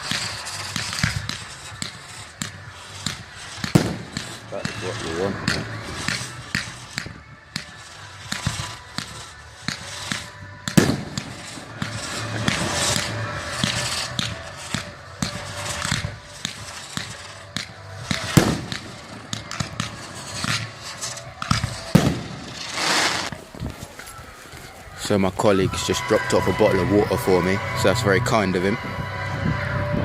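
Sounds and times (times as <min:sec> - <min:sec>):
fireworks bangs: 0:00.0 - 0:30.0
fireworks crackling: 0:00.0 - 0:30.0.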